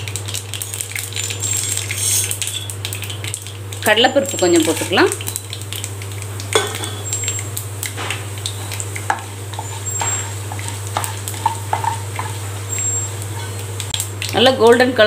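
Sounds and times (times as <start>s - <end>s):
seeds sizzling and popping in oil: 0.0s - 15.0s
wooden spatula scraping pan: 9.1s - 13.6s.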